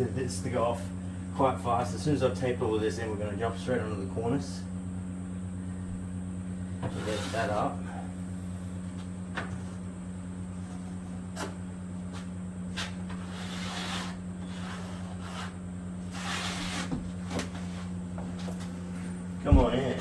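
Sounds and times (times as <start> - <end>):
steady low hum: 0.0 - 20.0
plastering tools scraping: 6.8 - 7.8, 10.5 - 19.1.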